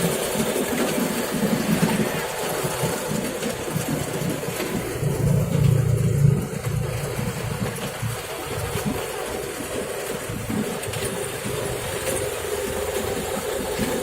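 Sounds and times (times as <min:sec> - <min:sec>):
train rumble: 0:00.0 - 0:14.0
loud low hum: 0:04.7 - 0:08.3.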